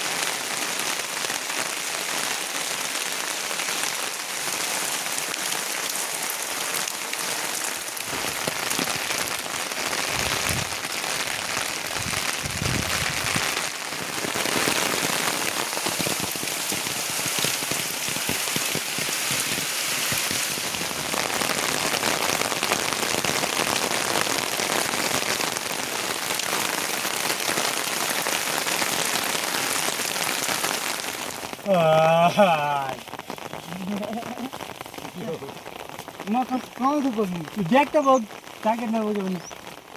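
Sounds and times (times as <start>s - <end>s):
heavy rain falling: 0.0s - 39.9s
low rumbles: 11.9s - 13.5s.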